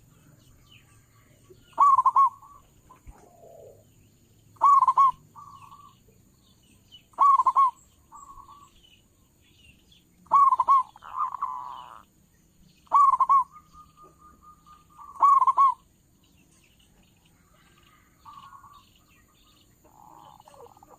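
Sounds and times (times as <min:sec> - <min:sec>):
dove cooing: 0:01.6 - 0:03.9, 0:04.6 - 0:06.0, 0:07.1 - 0:08.7, 0:10.2 - 0:12.0, 0:12.8 - 0:15.9, 0:17.4 - 0:20.9.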